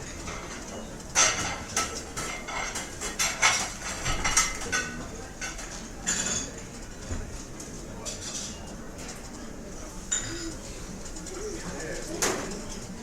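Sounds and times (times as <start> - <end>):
cutlery and dishes clinking: 0.1 - 6.6.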